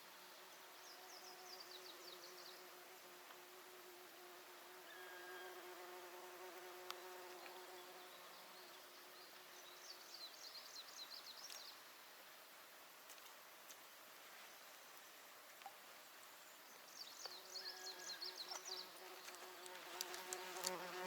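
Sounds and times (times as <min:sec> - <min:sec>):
fly buzzing: 0:17.8 - 0:21.0.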